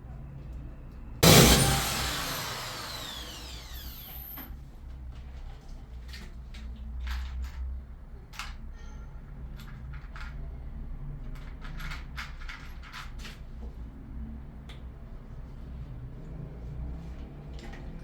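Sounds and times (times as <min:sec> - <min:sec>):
low rumble: 0:01.2 - 0:04.4.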